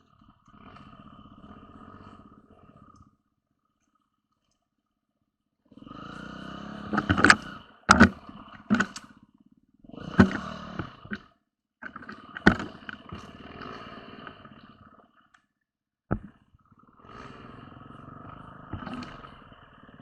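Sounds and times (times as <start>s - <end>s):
motorcycle engine running: 5.8s - 11.2s.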